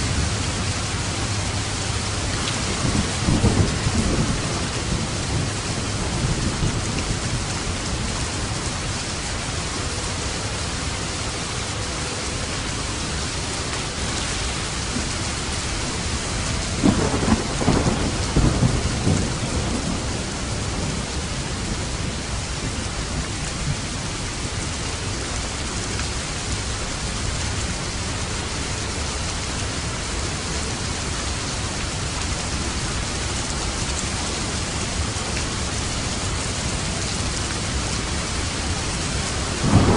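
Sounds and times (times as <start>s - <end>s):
heavy rain falling: 0.0s - 39.9s
thunder rumbling: 0.1s - 8.6s, 14.0s - 24.7s, 38.2s - 39.9s.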